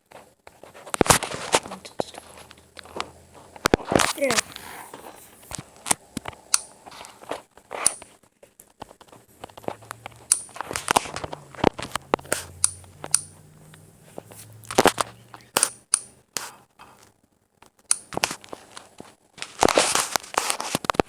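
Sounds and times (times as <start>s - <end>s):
ceiling fan parts crunching: 0.0s - 21.0s
low steady hum: 0.5s - 8.2s, 9.0s - 17.1s.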